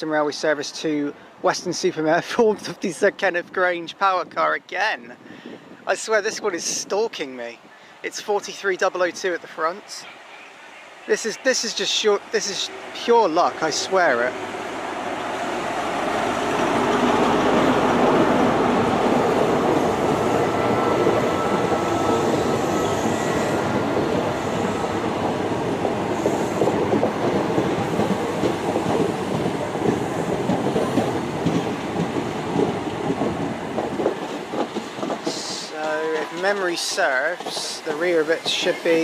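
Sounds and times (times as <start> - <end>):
train wheels rumbling on rail: 11.8 - 39.0.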